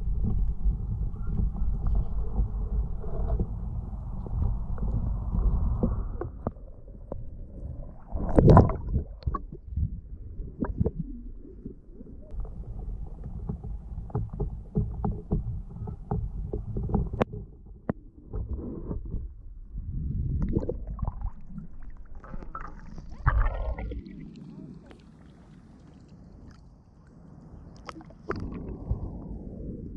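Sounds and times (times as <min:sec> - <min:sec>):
muffled underwater water rumbling: 0:00.0 - 0:29.9
sharp clicks and knocks: 0:12.3 - 0:19.2.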